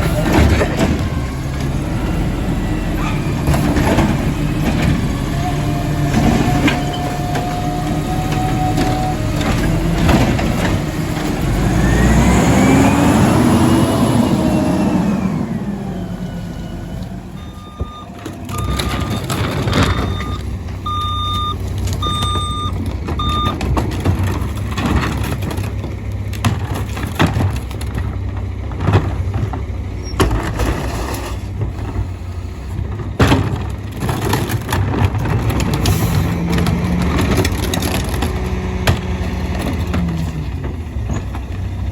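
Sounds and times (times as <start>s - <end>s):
garbage truck engine revving: 0.0s - 41.9s
backup alarm beeping: 17.3s - 23.6s.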